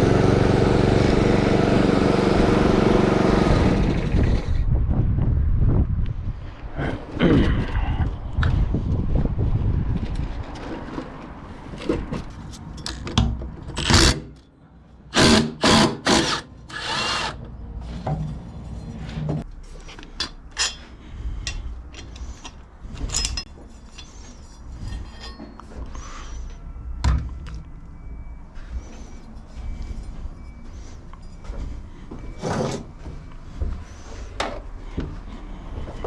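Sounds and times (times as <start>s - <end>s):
clanks of tools and metal parts: 10.4s - 14.6s, 16.2s - 28.1s, 28.7s - 35.0s
power tool bursts: 15.1s - 17.4s.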